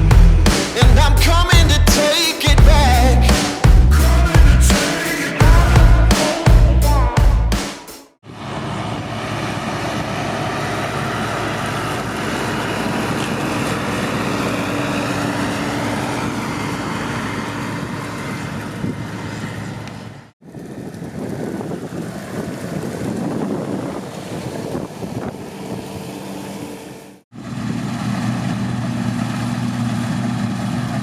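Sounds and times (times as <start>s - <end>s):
diesel engine humming: 0.0s - 7.6s
wind on microphone: 20.4s - 26.2s.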